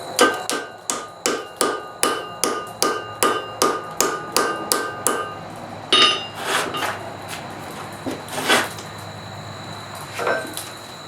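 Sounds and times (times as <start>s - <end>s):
hammer striking iron on anvil: 0.0s - 6.9s.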